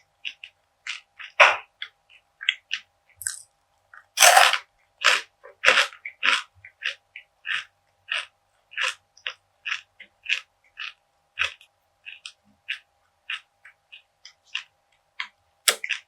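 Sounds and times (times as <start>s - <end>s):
crunchy bite into brittle: 4.2s - 5.8s
crunchy chewing: 4.2s - 16.0s.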